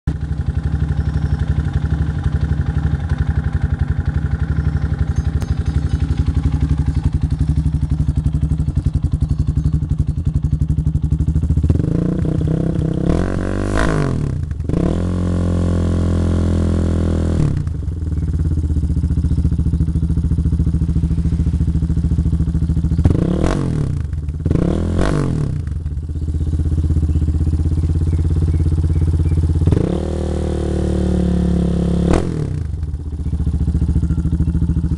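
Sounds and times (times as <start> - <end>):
motorcycle engine idling and revving: 0.0 - 34.9.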